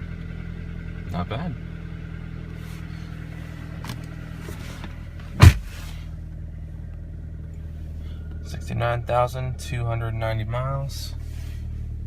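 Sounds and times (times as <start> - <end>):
car engine idling: 0.0 - 12.0
loud thump: 5.2 - 6.0.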